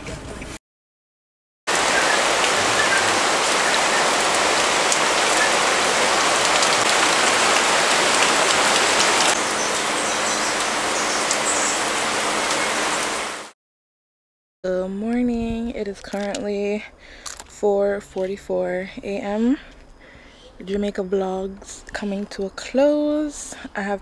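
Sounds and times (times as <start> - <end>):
steady rain falling: 1.7 - 13.5.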